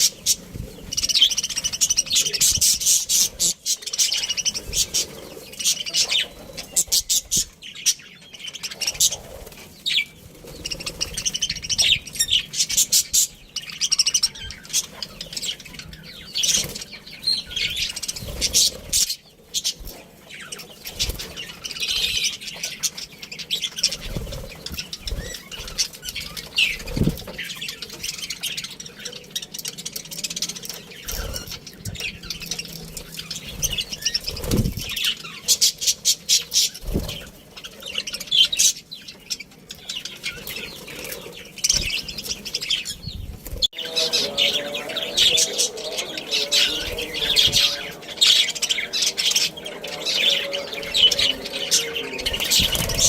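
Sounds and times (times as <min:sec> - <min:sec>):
budgerigars chirping: 0:00.0 - 0:53.0
wing flutters: 0:15.9 - 0:20.1, 0:23.7 - 0:28.1, 0:30.4 - 0:37.8, 0:40.2 - 0:53.0.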